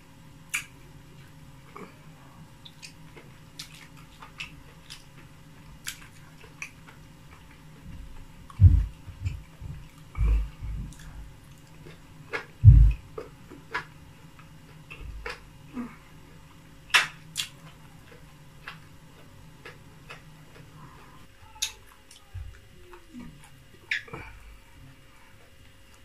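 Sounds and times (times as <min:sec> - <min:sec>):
person chewing with mouth clicks: 0:00.5 - 0:02.0, 0:02.6 - 0:24.4
dull low thumps: 0:07.8 - 0:11.4, 0:12.6 - 0:13.2.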